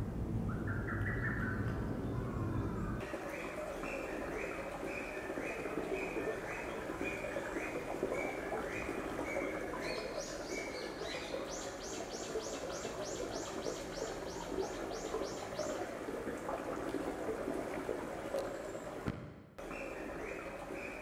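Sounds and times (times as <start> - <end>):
songbird calling: 0.5 - 15.9, 19.6 - 21.0
babbling stream: 3.0 - 21.0.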